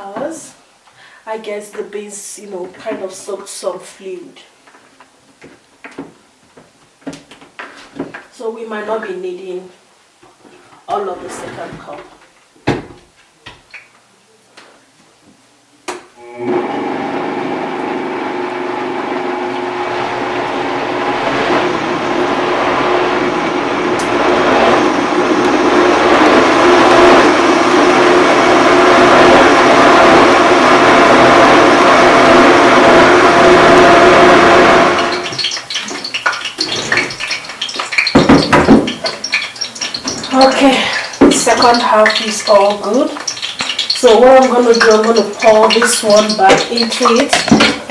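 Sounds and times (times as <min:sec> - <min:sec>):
electric blender running: 0:16.2 - 0:35.4.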